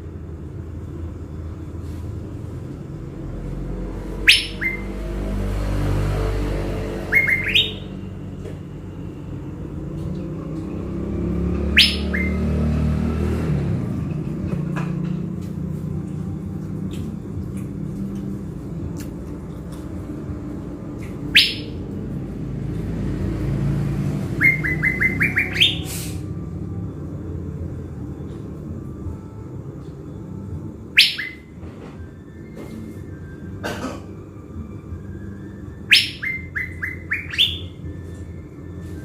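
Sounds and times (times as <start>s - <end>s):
songbird whistled calls: 4.1s - 5.1s, 7.0s - 8.1s, 11.6s - 12.6s, 21.2s - 21.9s, 24.3s - 26.2s, 30.9s - 31.6s, 35.7s - 38.2s.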